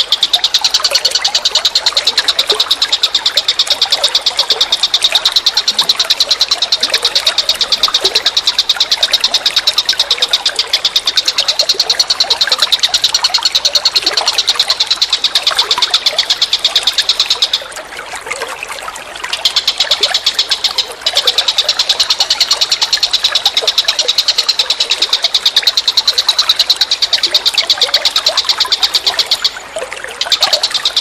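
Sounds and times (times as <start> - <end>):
animal high-pitched trill: 0.0 - 18.5
faint chirps: 0.0 - 31.0.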